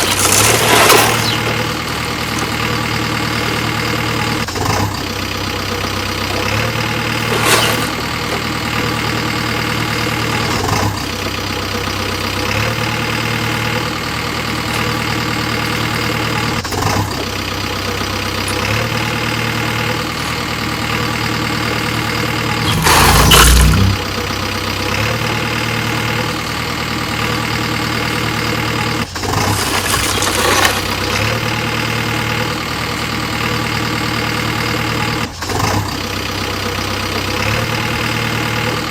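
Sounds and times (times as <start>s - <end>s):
diesel engines idling: 0.0s - 38.9s
short louder noise surges: 22.4s - 24.3s.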